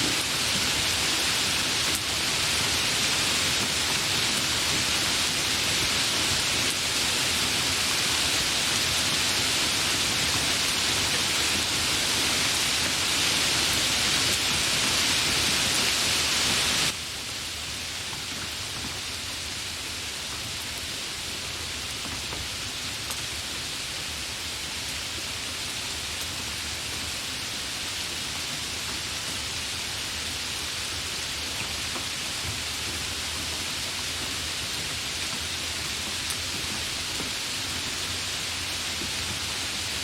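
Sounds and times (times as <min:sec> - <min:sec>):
steady rain falling: 0:00.0 - 0:40.0
faint raindrop ticks: 0:21.9 - 0:23.4, 0:31.4 - 0:38.2.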